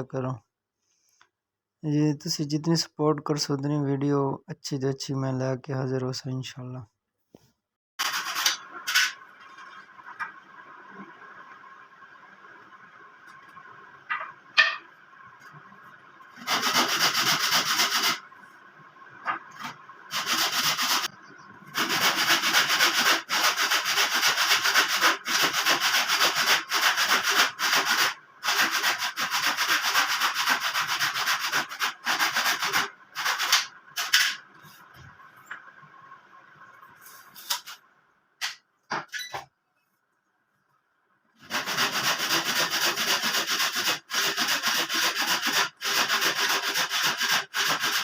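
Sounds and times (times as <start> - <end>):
wood being sanded: 16.4 - 18.2, 20.1 - 21.1, 21.8 - 33.7, 41.4 - 48.0.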